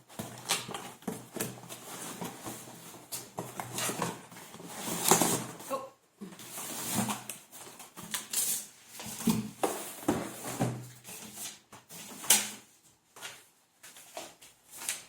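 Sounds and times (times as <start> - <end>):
cardboard packaging rustling: 0.0 - 5.7.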